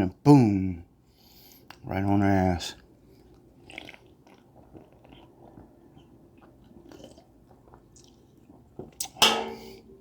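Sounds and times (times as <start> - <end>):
faint chewing of food: 2.7 - 9.2.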